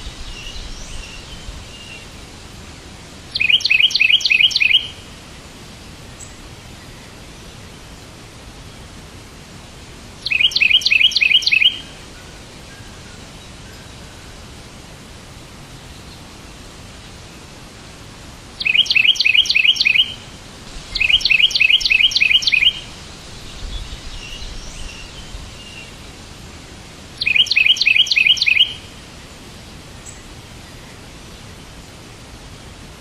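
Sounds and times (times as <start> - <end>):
steady hiss: 0.0 - 33.0
bird chirping rapidly: 3.3 - 5.0, 10.2 - 11.9, 18.6 - 20.2, 20.9 - 25.9, 27.2 - 28.9
faint bird calls: 3.3 - 5.0, 10.2 - 13.1, 18.6 - 20.3, 20.9 - 23.0, 27.2 - 28.9.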